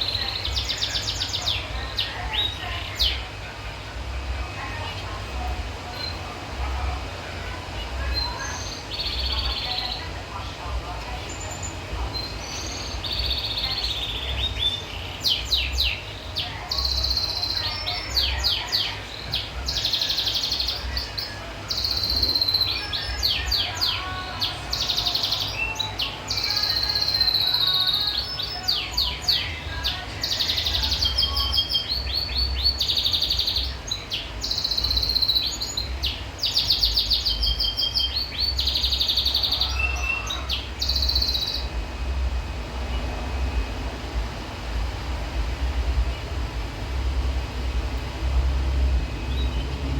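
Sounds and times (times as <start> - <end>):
finch singing: 0.0 - 3.3, 7.9 - 10.2, 11.0 - 41.8, 49.2 - 49.9
low rumble: 41.6 - 49.9.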